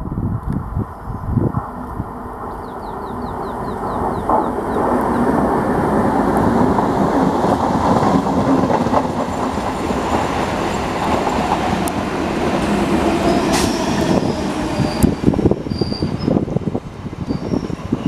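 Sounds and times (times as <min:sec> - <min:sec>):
train wheels rumbling on rails: 0:01.4 - 0:18.0
wheels clicking over rail joints: 0:06.3 - 0:12.7.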